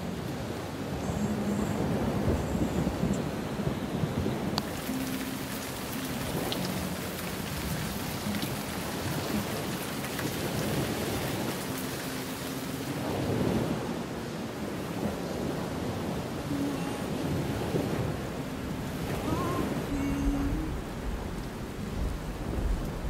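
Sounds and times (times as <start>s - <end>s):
heavy rain on car roof: 0.0s - 23.0s
tyres on wet road: 4.6s - 13.9s.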